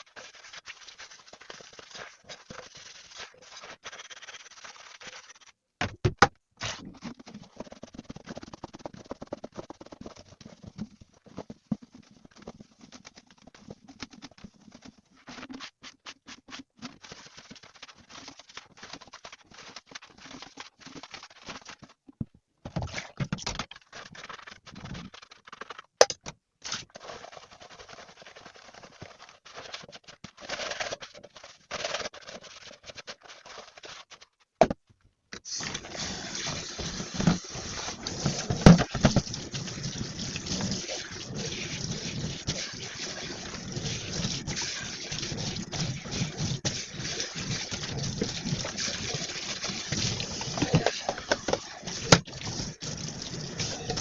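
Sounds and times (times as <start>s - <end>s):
tap water running: 35.5s - 54.0s.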